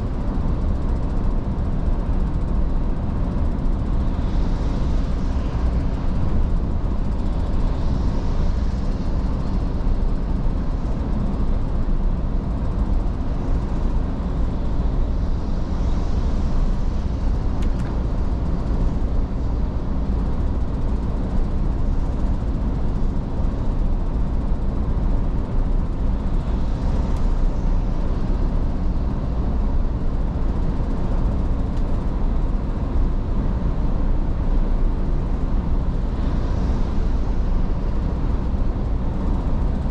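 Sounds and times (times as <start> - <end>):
faint steady hum: 0.0 - 39.9
truck engine and road rumble: 0.0 - 39.9.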